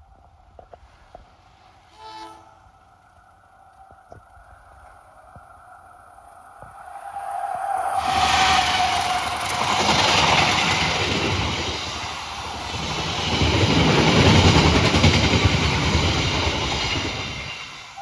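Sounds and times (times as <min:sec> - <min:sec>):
train wheels clattering on rails: 0:08.0 - 0:18.0.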